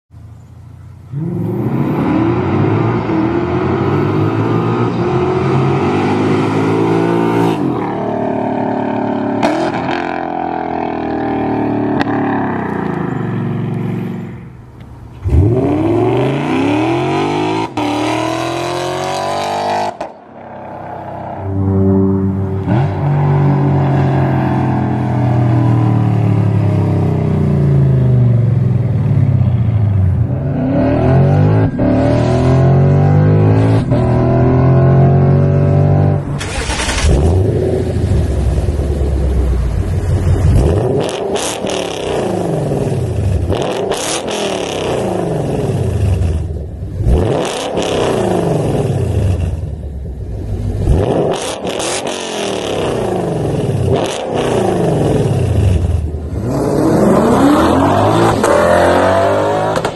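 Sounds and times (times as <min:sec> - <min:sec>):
car engine revving: 0:01.0 - 0:59.9.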